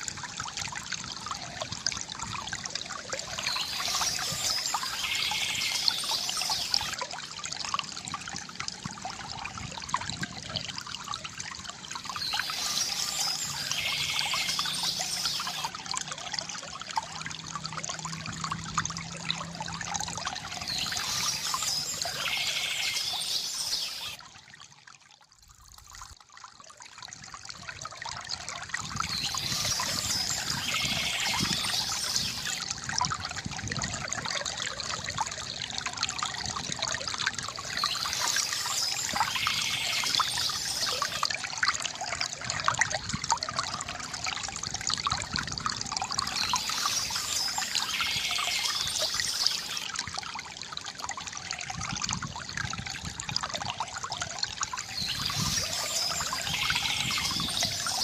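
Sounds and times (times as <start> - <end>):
river water gurgling over stones: 0.0 - 58.0
high bird chirping: 12.2 - 15.7, 20.6 - 24.2, 54.8 - 58.0.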